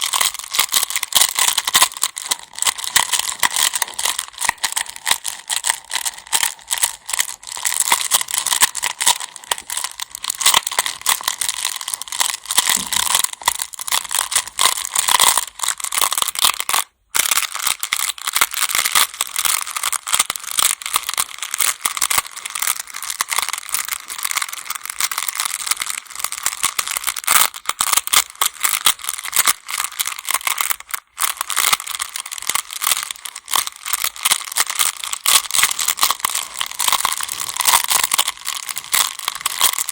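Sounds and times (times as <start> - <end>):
stones clattering together: 12.5 - 13.5.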